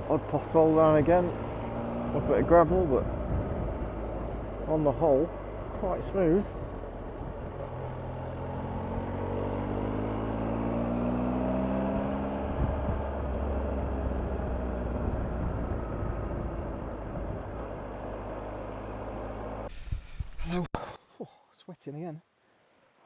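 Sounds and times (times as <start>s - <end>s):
motorcycle engine pulling away: 0.0s - 19.7s
road and wind noise: 0.0s - 20.7s.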